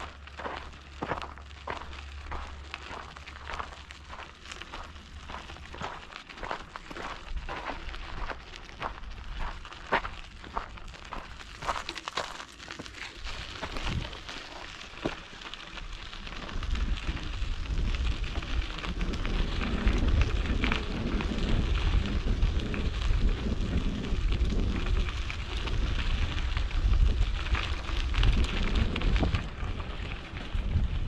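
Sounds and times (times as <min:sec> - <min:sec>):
bike tyres crunching on gravel: 0:00.0 - 0:31.0
wind buffeting microphone: 0:13.2 - 0:14.3, 0:15.8 - 0:31.0.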